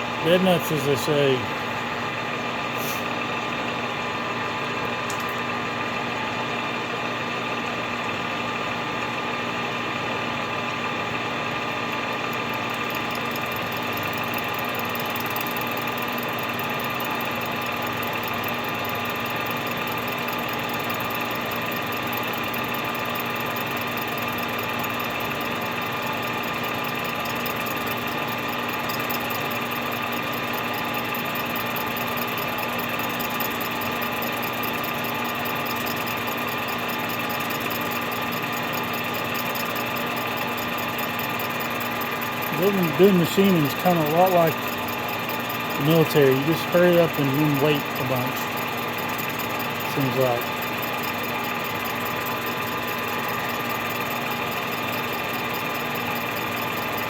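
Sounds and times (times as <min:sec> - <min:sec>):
milling machine running: 0:00.0 - 0:03.5, 0:10.7 - 0:57.0
faint fast ticking: 0:12.0 - 0:57.0.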